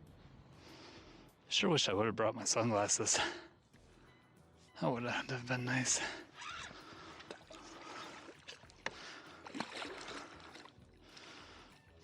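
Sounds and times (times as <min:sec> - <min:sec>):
water splashing and trickling: 0:05.7 - 0:11.8.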